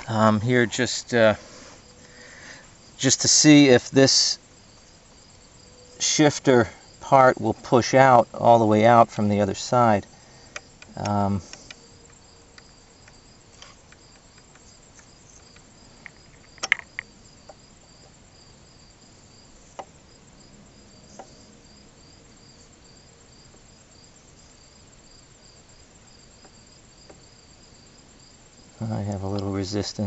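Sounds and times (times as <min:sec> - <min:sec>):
crickets chirping: 0:00.0 - 0:30.0
metallic clicks and knocks: 0:13.0 - 0:17.1.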